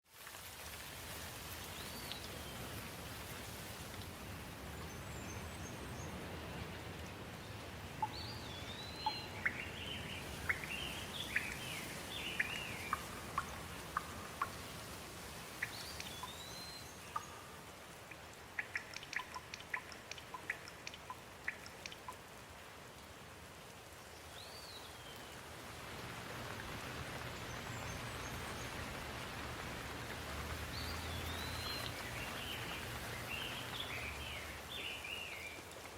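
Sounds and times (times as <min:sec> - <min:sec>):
steady rain: 0:00.0 - 0:35.9
sharp drips: 0:07.8 - 0:35.9.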